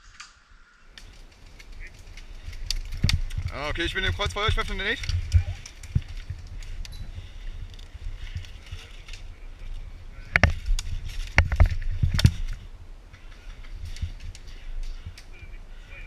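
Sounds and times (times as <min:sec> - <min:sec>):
sharp cracks: 0:00.0 - 0:08.5
steady low rumble: 0:00.0 - 0:16.0.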